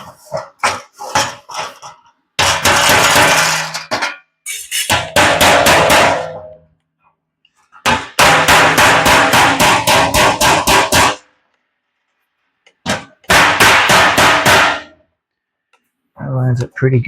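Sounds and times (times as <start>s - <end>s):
hammer striking sheet metal: 0.0s - 6.6s, 7.7s - 11.3s, 12.9s - 15.0s.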